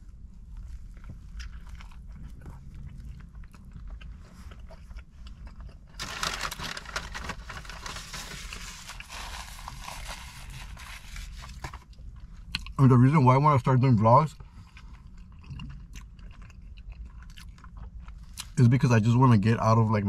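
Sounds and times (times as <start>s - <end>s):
steady low hum: 0.0s - 20.0s
biting and chewing sandwich: 0.1s - 12.8s, 14.4s - 18.6s
dense rustling: 6.0s - 11.9s.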